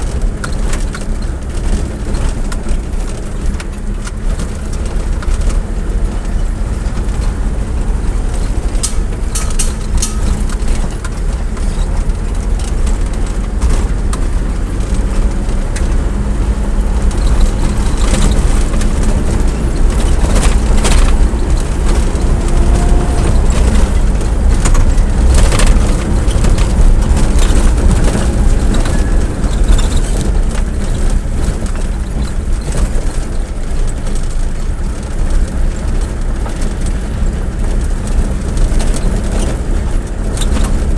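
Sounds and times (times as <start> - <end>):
vehicle rumbling on the move: 0.0 - 40.9
clicks and knocks: 8.2 - 16.0.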